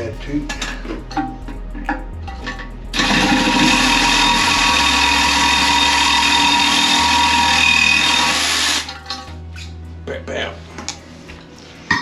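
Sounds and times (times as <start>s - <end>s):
power saw cutting metal: 3.0s - 9.0s.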